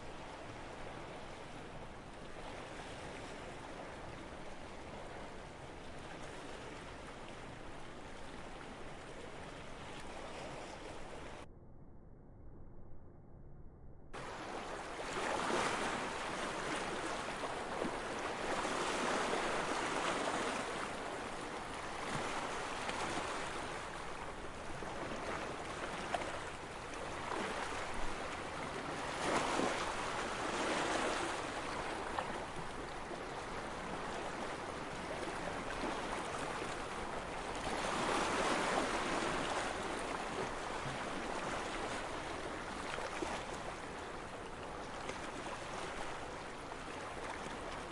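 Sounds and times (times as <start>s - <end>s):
sea waves washing in: 14.2s - 47.9s.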